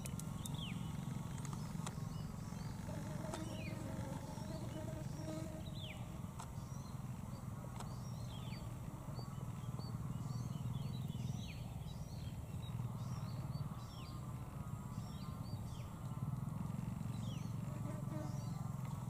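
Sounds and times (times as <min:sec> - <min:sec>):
birds whistling calls: 0:00.0 - 0:14.2.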